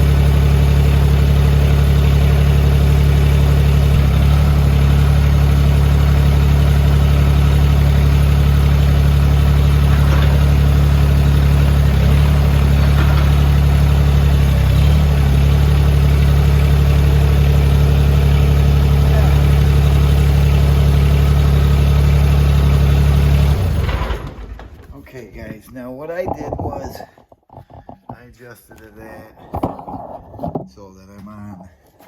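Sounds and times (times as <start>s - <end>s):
tractor diesel engine idling: 0.0s - 25.3s.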